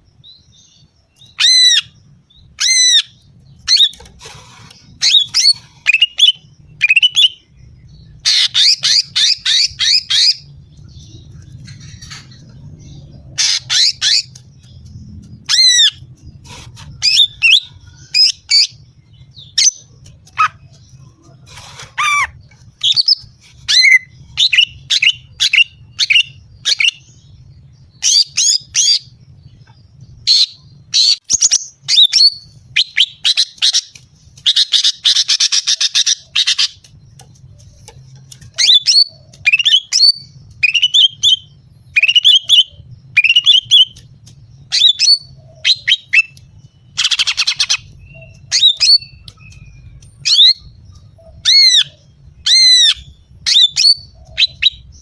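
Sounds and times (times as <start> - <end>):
bird harsh grating chatter: 2.6 - 7.3, 15.5 - 18.8, 19.4 - 27.0.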